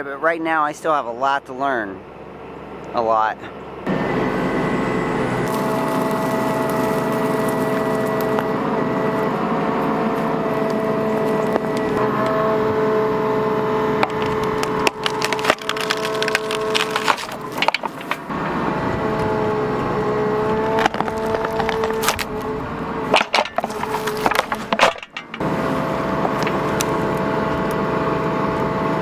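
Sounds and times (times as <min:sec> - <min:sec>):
mini excavator whining: 0:03.6 - 0:29.0
wood and roots cracking: 0:05.2 - 0:12.0, 0:14.0 - 0:18.4, 0:20.5 - 0:25.4, 0:26.2 - 0:27.2.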